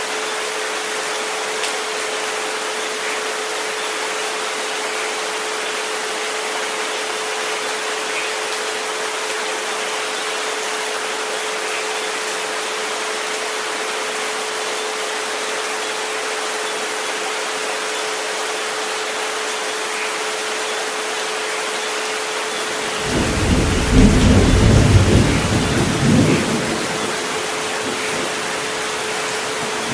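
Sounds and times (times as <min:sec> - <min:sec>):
rain hiss: 0:00.0 - 0:29.9
thunder rumble: 0:22.9 - 0:29.9.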